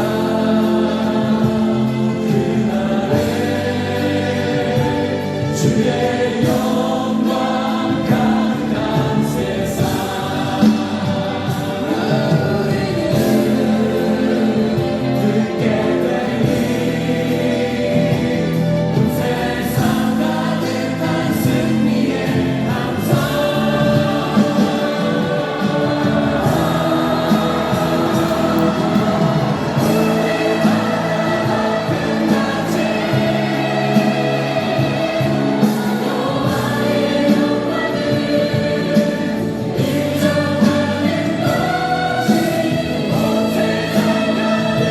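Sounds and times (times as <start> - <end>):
choir singing worship song: 0.0 - 44.9
instrumental accompaniment: 0.0 - 44.9.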